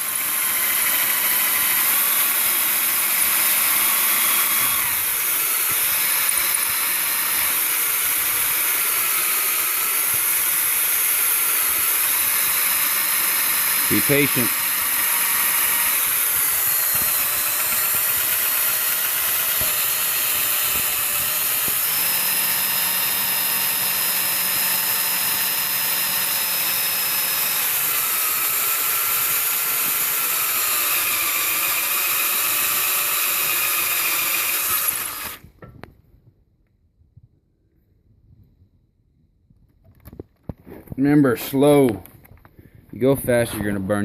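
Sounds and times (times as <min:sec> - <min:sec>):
power drill whining: 0:00.0 - 0:35.9.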